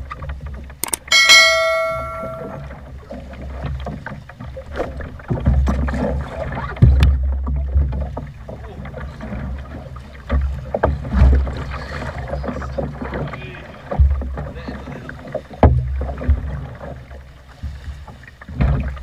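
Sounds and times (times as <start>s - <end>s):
waves slapping boat hull: 0.0s - 19.0s
ringing tone: 0.8s - 2.6s.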